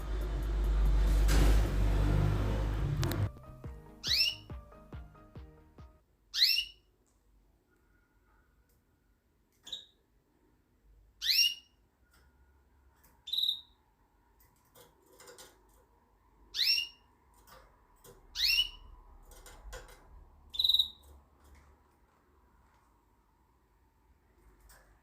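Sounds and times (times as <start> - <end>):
canary calling: 3.9 - 4.6, 6.3 - 6.9, 11.2 - 11.8, 13.2 - 13.9, 16.4 - 17.2, 18.2 - 19.0, 20.5 - 21.2.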